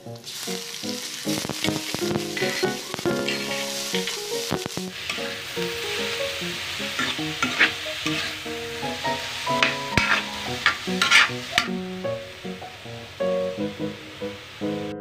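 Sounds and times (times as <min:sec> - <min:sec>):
meat sizzling in a wok: 0:00.0 - 0:14.8
metal ladle scraping a pan: 0:01.3 - 0:11.8.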